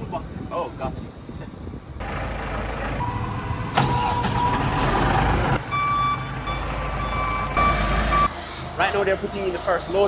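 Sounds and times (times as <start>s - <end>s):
diesel engine running: 2.0s - 10.0s.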